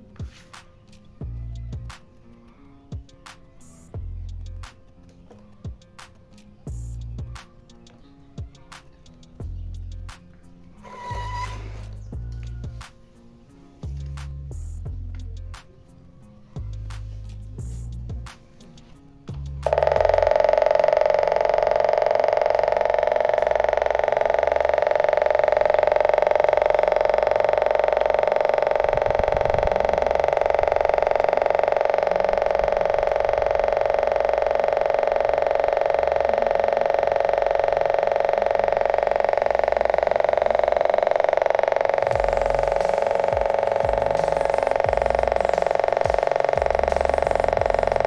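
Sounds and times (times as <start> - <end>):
small motor buzzing: 10.8 - 12.9, 19.6 - 48.0.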